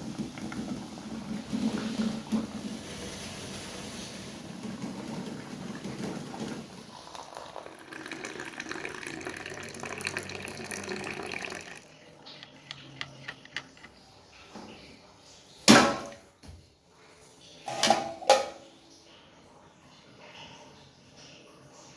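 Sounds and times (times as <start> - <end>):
water running from tap: 0.0 - 13.6.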